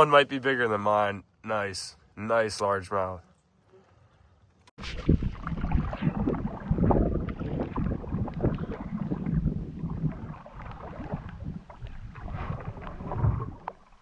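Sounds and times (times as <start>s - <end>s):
wind on microphone: 4.8s - 14.0s.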